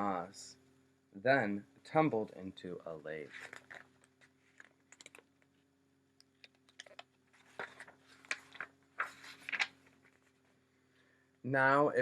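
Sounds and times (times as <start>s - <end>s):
faint steady hum: 0.0s - 12.0s
hands handling a book: 3.2s - 5.6s, 6.2s - 10.6s.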